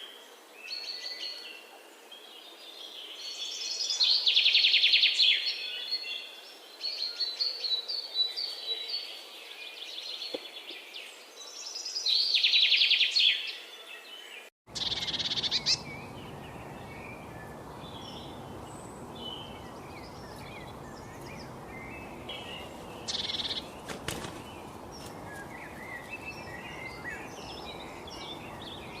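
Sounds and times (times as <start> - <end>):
birds singing buzzy trills: 9.8 - 29.0
birds twittering: 9.8 - 29.0
short bird chirps: 22.4 - 24.4.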